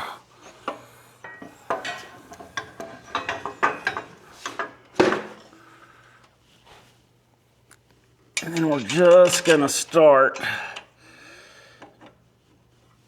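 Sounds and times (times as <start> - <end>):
metal parts clinking and knocking: 1.3 - 5.2, 8.4 - 10.5.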